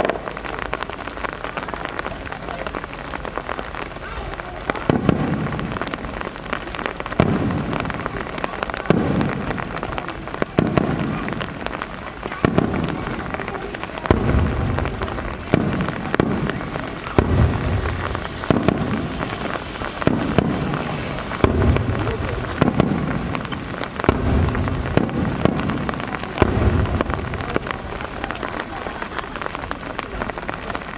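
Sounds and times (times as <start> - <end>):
firework shells booming: 0.0 - 30.9
rain falling: 0.0 - 30.9.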